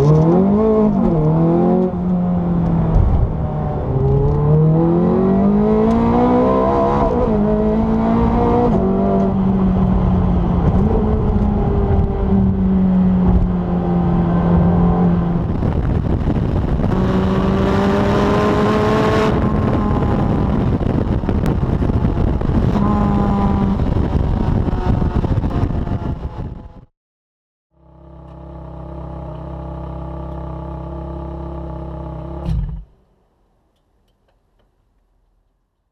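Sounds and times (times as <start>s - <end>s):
sports car engine accelerating: 0.0s - 26.8s, 27.8s - 32.9s.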